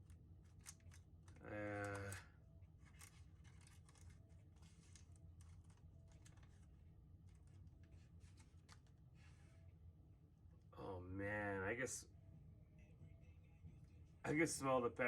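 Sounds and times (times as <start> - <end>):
low steady hum: 0.0 - 15.0
chocolate wrapper crinkling: 2.8 - 9.0.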